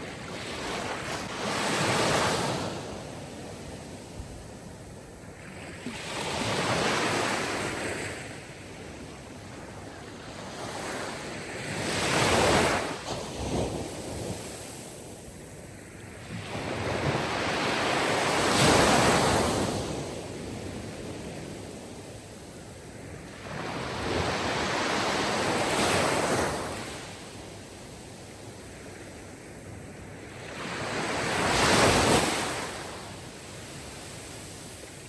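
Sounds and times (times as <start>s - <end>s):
sea waves breaking on shore: 16.1s - 22.0s, 23.2s - 27.2s, 30.0s - 35.0s.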